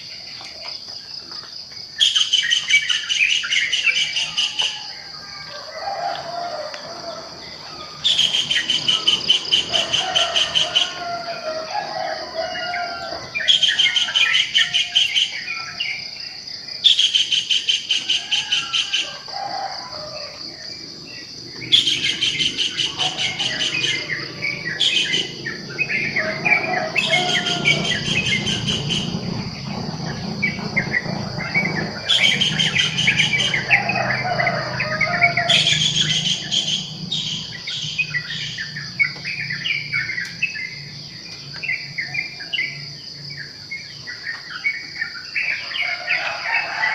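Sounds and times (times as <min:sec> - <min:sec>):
birds chirping and singing: 0:00.0 - 0:46.9
high insect drone: 0:00.0 - 0:46.9
rapid bird trill: 0:07.3 - 0:16.0, 0:21.4 - 0:40.9.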